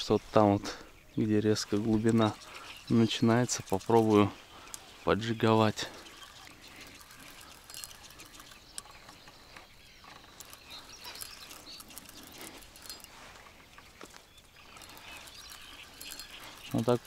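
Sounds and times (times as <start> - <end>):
bird chirps: 0.0 - 17.0
small clicks: 6.0 - 17.0.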